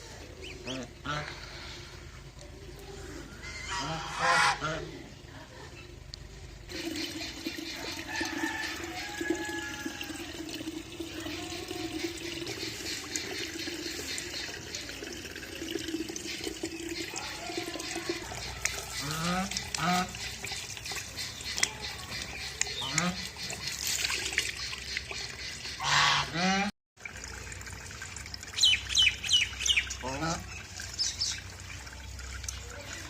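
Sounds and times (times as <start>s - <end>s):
geese honking: 3.4s - 4.9s, 25.7s - 26.7s
water running and splashing: 6.7s - 33.0s.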